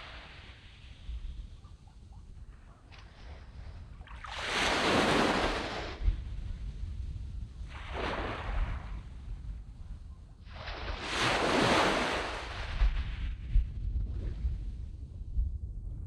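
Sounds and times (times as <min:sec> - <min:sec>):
low wind rumble on microphone: 0:00.0 - 0:16.0
waves washing up a sandy beach: 0:04.0 - 0:06.2, 0:07.7 - 0:09.2, 0:10.5 - 0:13.4.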